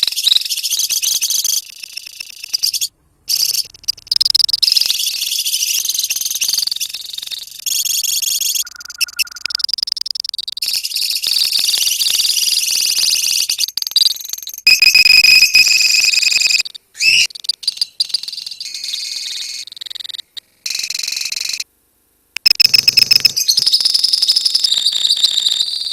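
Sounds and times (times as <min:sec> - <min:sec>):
lovebirds chirping and trilling: 0:00.0 - 0:09.8.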